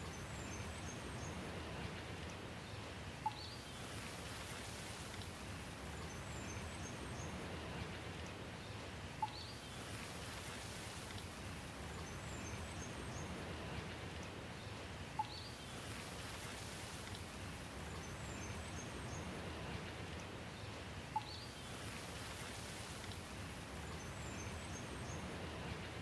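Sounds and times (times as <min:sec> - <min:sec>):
steady rain: 0:00.0 - 0:26.0
faint high bird chirps: 0:03.2 - 0:03.6, 0:15.2 - 0:15.6, 0:21.1 - 0:21.7.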